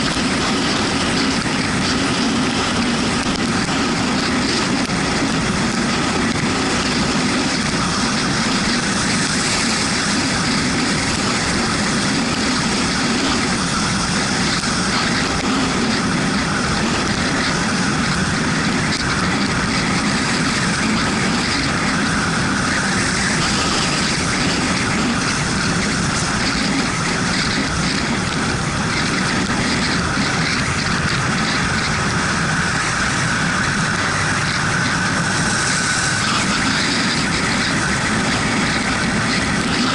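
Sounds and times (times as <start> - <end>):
motorcycle engine running: 0.0 - 39.9
wind rushing: 0.0 - 39.9
tyre hiss on wet road: 6.6 - 27.9, 29.9 - 39.9.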